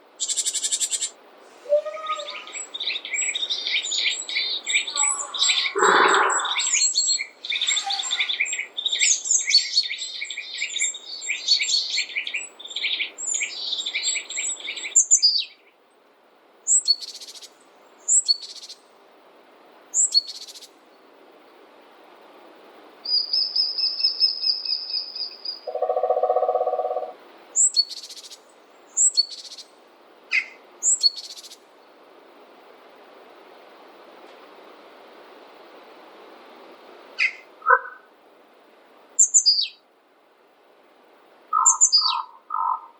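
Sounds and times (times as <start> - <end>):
faint steady hiss: 0.0 - 42.9
songbirds twittering: 0.2 - 15.8, 23.0 - 31.9, 37.2 - 38.1, 39.2 - 39.8, 41.5 - 42.9
sharp down-slurred bird chirps: 1.7 - 15.5, 23.1 - 28.4, 37.2 - 38.1, 39.2 - 39.8, 41.6 - 42.9
short low buzzy bird call: 5.3 - 6.7.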